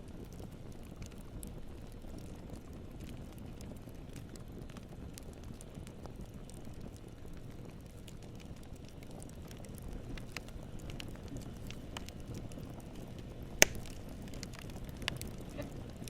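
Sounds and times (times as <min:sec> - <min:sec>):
campfire rumble: 0:00.0 - 0:16.0
small fire crackles: 0:00.0 - 0:16.0
sharp loud pop of fire: 0:13.6 - 0:14.0.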